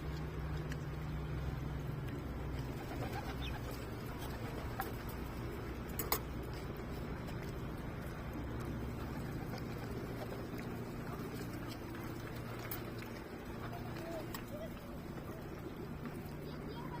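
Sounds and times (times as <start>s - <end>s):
steady low rumble: 0.0s - 17.0s
pigeons cooing: 2.6s - 5.2s.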